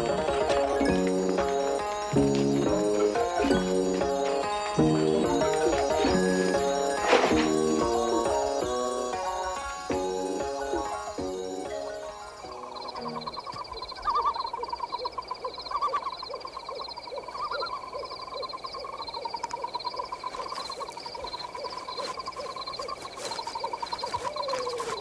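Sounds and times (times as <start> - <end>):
thin high whine: 0.0 - 13.4
insects chirping: 0.0 - 25.0.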